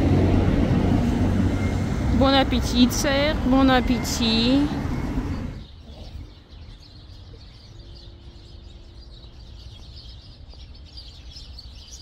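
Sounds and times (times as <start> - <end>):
city traffic rumble: 0.0 - 12.0
small birds chirping: 2.6 - 12.0.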